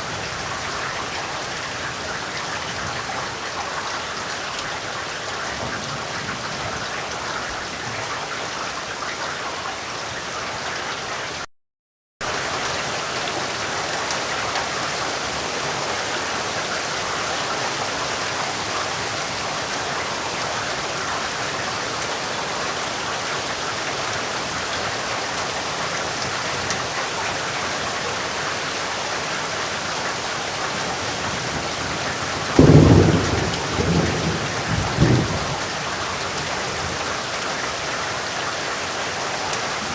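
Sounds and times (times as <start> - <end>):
heavy rain falling: 0.0 - 11.5, 12.2 - 39.9
thunderclap and rumble: 30.9 - 37.0.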